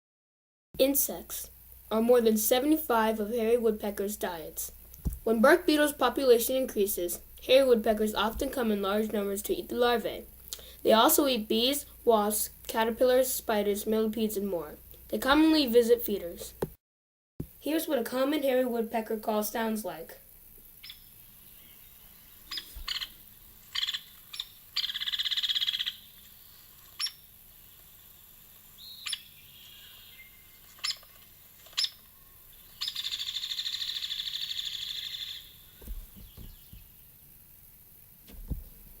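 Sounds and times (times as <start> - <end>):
woodpecker rattling call: 20.7 - 27.4, 28.7 - 37.1
woodpecker sharp call notes: 20.8 - 21.8, 22.5 - 26.3, 26.9 - 27.3, 28.8 - 36.9.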